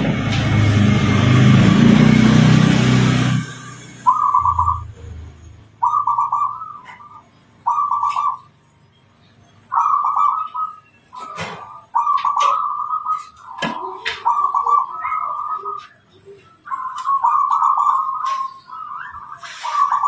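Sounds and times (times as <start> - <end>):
sharp high sweeping bird calls: 0.6 - 8.7, 9.7 - 20.0
dove cooing: 5.8 - 8.5, 9.7 - 20.0.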